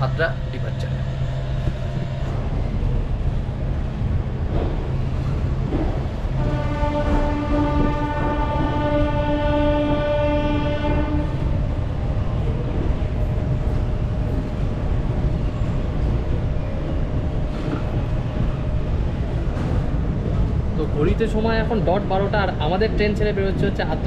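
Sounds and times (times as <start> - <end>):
train rumble: 0.0 - 24.0
locomotive horn blast: 6.4 - 11.7.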